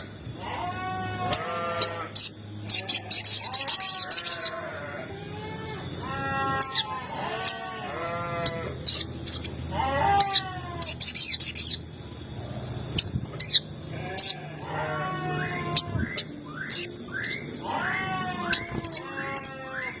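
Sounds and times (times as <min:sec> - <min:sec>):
nasal wavering bird calls: 0:00.0 - 0:20.0
high-pitched bird chirps: 0:08.4 - 0:11.9, 0:12.9 - 0:20.0.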